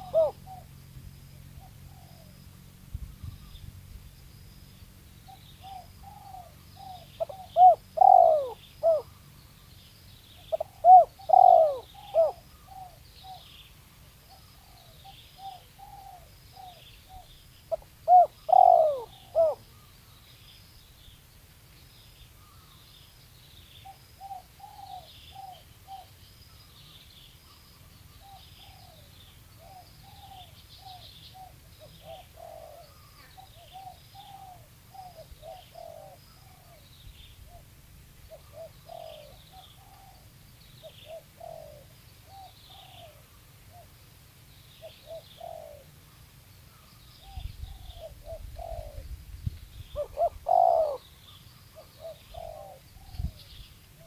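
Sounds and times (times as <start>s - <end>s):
dove cooing: 0.0s - 0.8s, 5.6s - 9.2s, 10.4s - 13.5s, 14.3s - 19.6s, 28.2s - 36.9s, 38.3s - 44.0s, 44.8s - 46.0s, 47.2s - 49.1s, 49.9s - 54.0s
small birds chirping: 0.0s - 54.0s.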